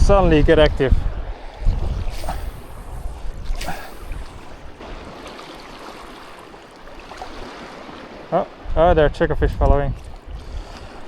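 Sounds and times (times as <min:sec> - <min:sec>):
wind rumble on microphone: 0:00.0 - 0:05.3, 0:08.6 - 0:11.0
sea water lapping: 0:00.0 - 0:11.0
water splash: 0:01.6 - 0:08.2.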